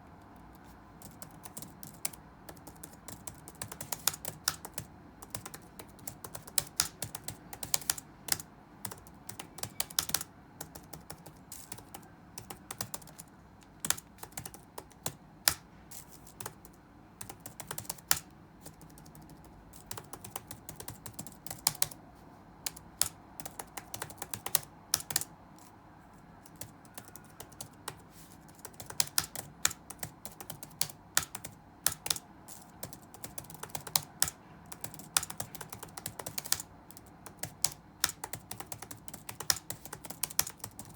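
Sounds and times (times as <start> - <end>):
faint room ambience: 0.0 - 40.9
keyboard key clicks: 1.0 - 15.6, 22.6 - 25.3, 28.6 - 40.9.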